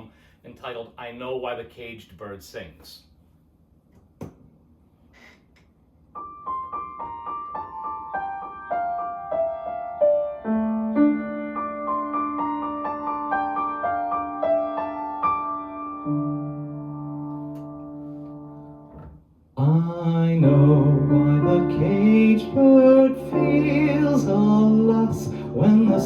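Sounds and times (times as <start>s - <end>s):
low piano bass notes: 6.2s - 26.0s.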